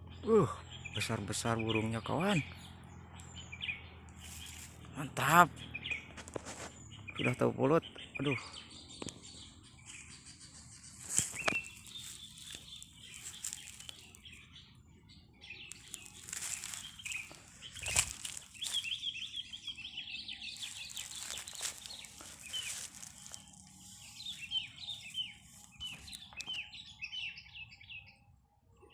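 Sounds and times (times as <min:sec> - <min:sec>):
bulbuls chirping: 0:00.0 - 0:28.2
sharp rustling thumps: 0:15.7 - 0:19.0.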